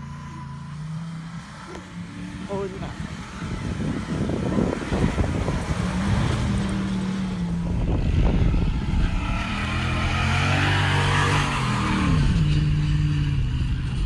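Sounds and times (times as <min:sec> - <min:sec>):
truck engine revving: 0:00.0 - 0:14.0
wind on microphone: 0:02.4 - 0:10.6.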